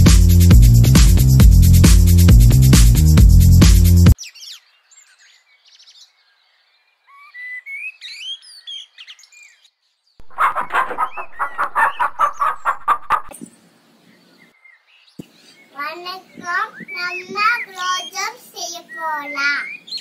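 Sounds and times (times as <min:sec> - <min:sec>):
birds chirping softly: 0:04.2 - 0:20.0
fast repeated bird calls: 0:10.2 - 0:13.4.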